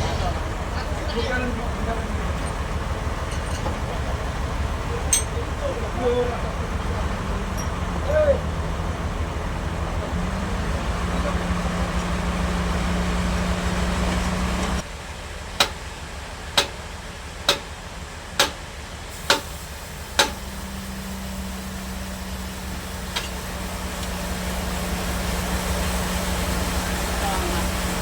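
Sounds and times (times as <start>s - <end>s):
bandsaw machinery humming: 19.2s - 28.0s.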